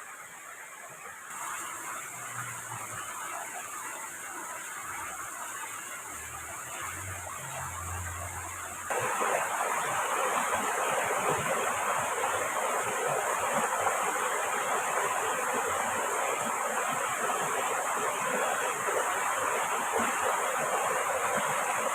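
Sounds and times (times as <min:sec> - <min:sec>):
river flowing: 0:00.0 - 0:21.9
heavy rain: 0:06.2 - 0:21.9.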